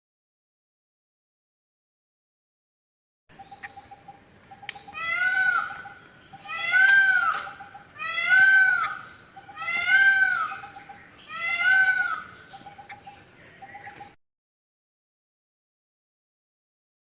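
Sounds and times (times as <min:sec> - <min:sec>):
bird harsh calls: 0:03.3 - 0:14.2.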